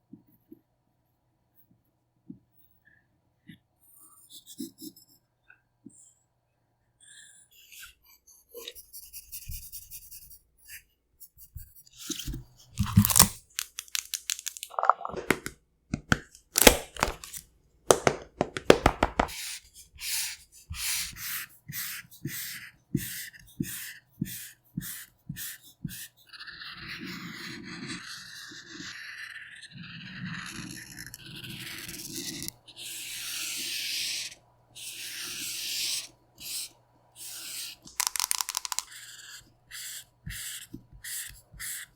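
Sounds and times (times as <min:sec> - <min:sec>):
pen scratching on paper: 0:07.5 - 0:13.3, 0:18.8 - 0:41.9
paper crackling and crinkling: 0:12.8 - 0:15.4, 0:16.6 - 0:19.2.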